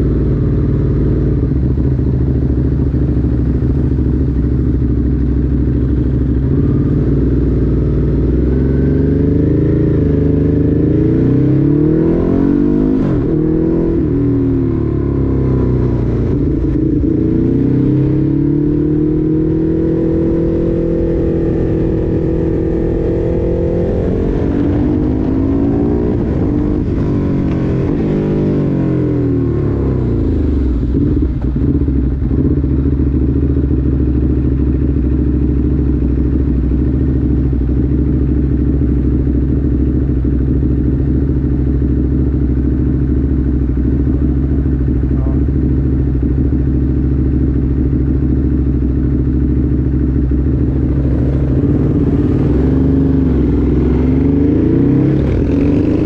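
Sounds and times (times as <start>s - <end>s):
motorcycle engine while riding: 0.0s - 56.0s.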